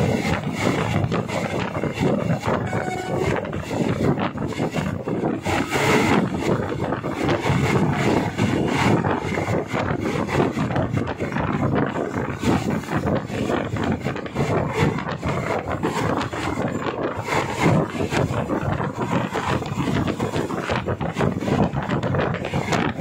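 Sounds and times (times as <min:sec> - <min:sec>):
rushing wind: 0:00.0 - 0:23.0
train wheels rumbling on track: 0:00.0 - 0:23.0.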